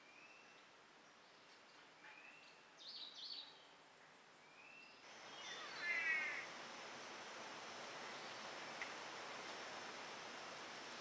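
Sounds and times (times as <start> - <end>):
background hiss: 0.0 - 11.0
harsh bird call: 5.5 - 6.5.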